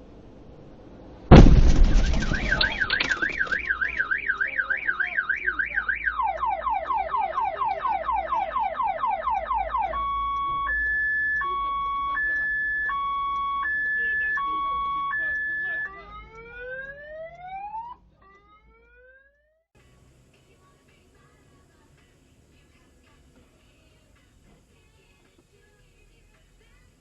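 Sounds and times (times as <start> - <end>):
vehicle collision crash: 1.2 - 4.3
car alarm: 1.3 - 19.6.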